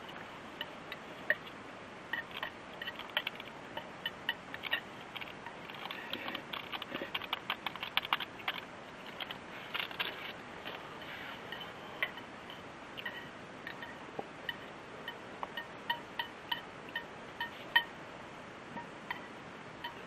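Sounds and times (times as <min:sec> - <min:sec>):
faint steady hiss: 0:00.0 - 0:20.0
light clicks and ticks: 0:02.2 - 0:10.8.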